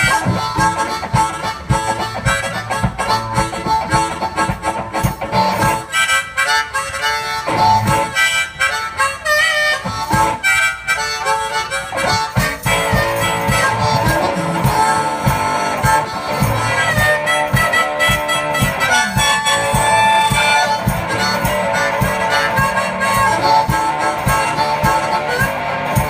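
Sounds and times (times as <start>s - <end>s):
steady low beat: 0.0s - 6.0s, 7.4s - 8.2s, 11.9s - 26.0s
blues harmonica solo: 0.0s - 26.0s.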